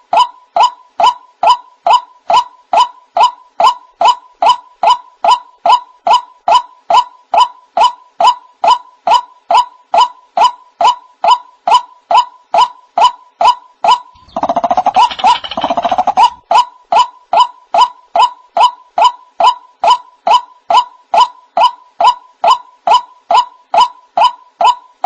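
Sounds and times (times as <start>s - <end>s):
waterhen calling: 14.2s - 16.4s.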